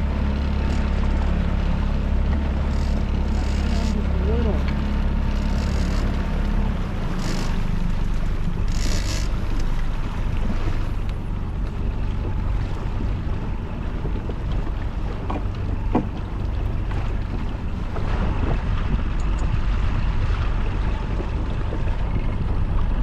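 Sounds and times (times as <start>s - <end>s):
outboard motor running: 0.0s - 23.0s
water rushing along hull: 0.0s - 23.0s
wind buffeting microphone: 0.0s - 23.0s.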